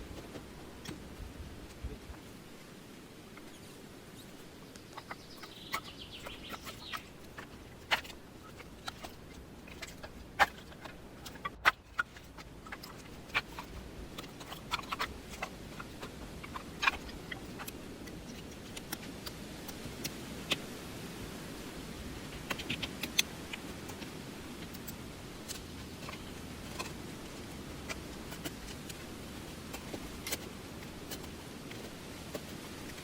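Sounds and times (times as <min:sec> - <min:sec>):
faint steady background noise: 0:00.0 - 0:33.0.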